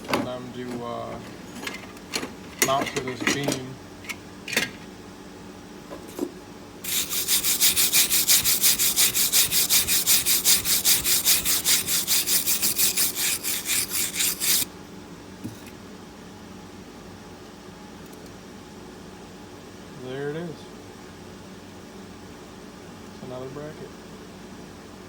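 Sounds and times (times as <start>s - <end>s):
rapid scraping on steel bracket: 6.8s - 14.7s.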